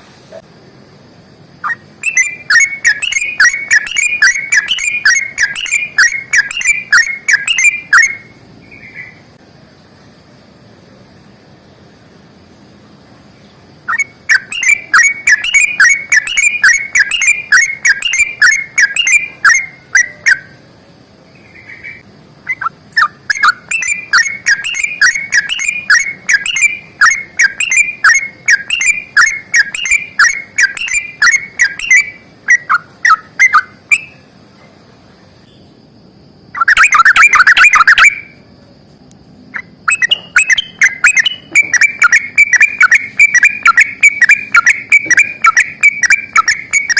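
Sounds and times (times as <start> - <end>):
bird chattering burst: 1.6 - 9.1, 13.9 - 20.6, 21.6 - 34.2, 36.6 - 38.3, 39.6 - 46.9.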